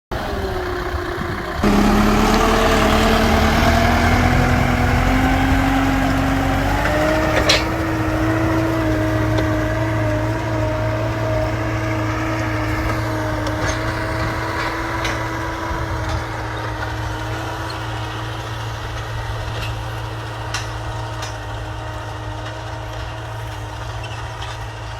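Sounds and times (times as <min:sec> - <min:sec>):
tractor diesel engine running: 0:00.1 - 0:24.9.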